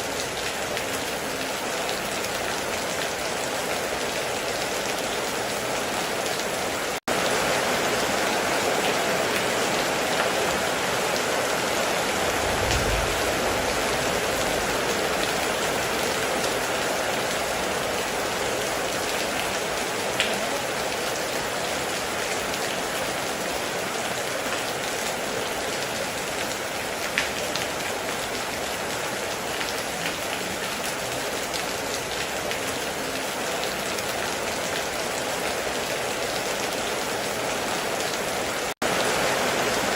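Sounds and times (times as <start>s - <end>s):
heavy rain: 0.0s - 39.9s
low rumble: 12.2s - 15.6s.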